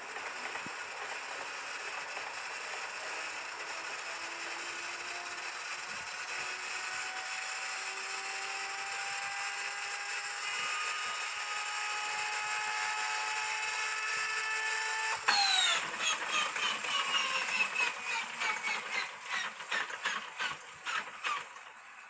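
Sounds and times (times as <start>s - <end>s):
inertia starter whine: 0.0s - 22.0s
engine cranking over: 15.1s - 21.8s.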